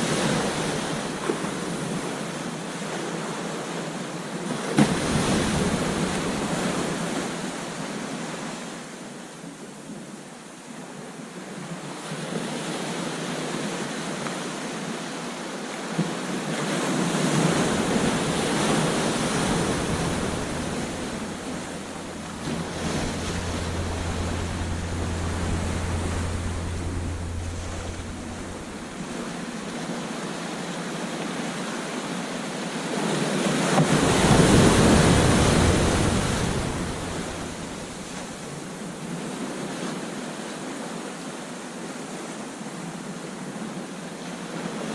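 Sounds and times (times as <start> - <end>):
ocean surf breaking on beach: 17.1 - 30.3, 33.8 - 39.2
wind rumbling on microphone: 17.5 - 30.3, 34.0 - 39.2.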